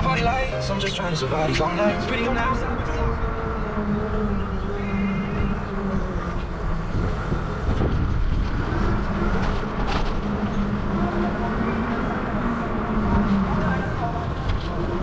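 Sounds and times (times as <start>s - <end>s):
bicycle rolling rumble: 0.0s - 15.0s
wind buffeting microphone: 0.0s - 15.0s.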